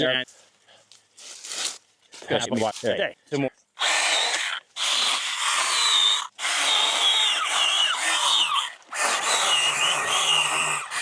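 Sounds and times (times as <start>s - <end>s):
mini chainsaw cutting brush: 3.8s - 11.0s.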